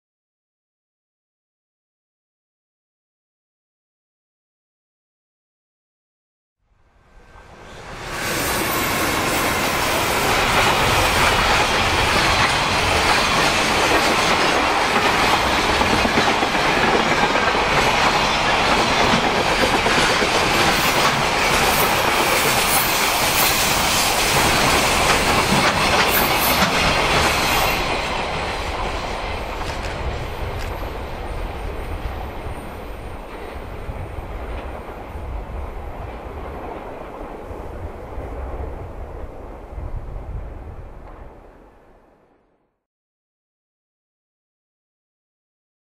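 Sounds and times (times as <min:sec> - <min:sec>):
freight train passing: 0:06.7 - 0:42.6
wagons clattering on track: 0:09.2 - 0:30.9.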